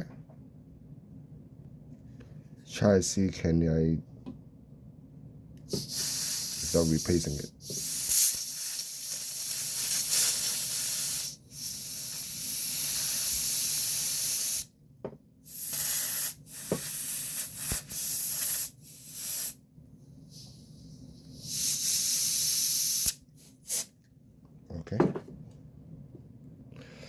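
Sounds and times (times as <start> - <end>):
compressed air hissing bursts: 5.6 - 14.7, 15.4 - 19.6, 20.2 - 23.9.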